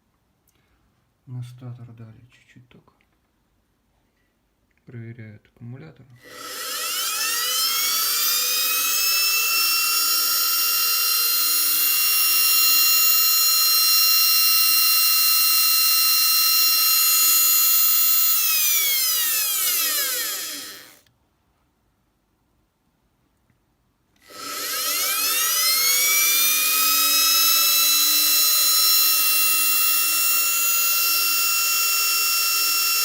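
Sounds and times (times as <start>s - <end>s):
electric motor whining: 6.2s - 21.1s, 24.2s - 33.0s.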